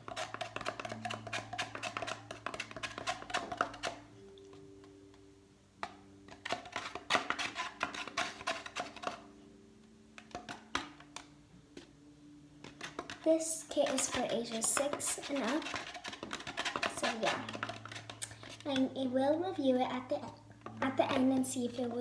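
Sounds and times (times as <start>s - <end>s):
plastic cup shaken rattling: 0.0s - 4.0s, 6.3s - 9.2s, 12.7s - 18.9s.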